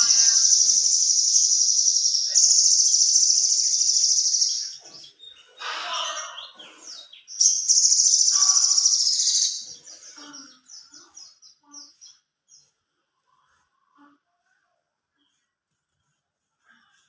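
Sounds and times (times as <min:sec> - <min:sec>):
bird song with trills: 0:00.0 - 0:12.7.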